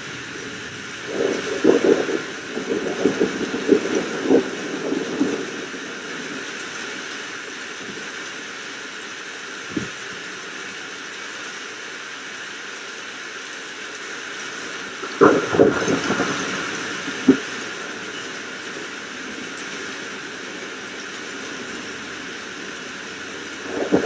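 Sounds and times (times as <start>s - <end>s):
rolling thunder: 0.0s - 8.2s, 14.9s - 24.0s
steady rain hiss: 0.0s - 24.0s.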